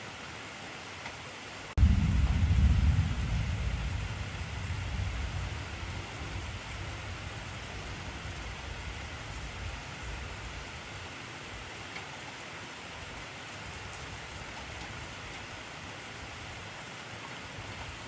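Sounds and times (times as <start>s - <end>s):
heavy rain: 0.0s - 18.0s
thunder rumbling: 1.8s - 11.1s.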